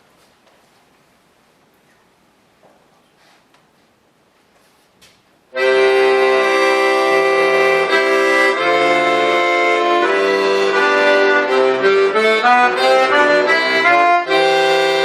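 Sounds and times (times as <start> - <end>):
button accordion chords: 5.5 - 15.0.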